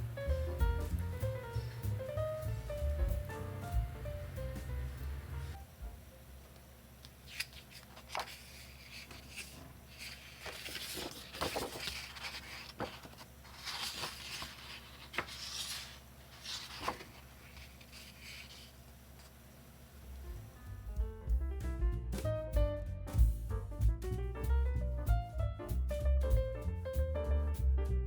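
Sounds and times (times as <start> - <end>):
paper rustling: 7.2 - 19.4.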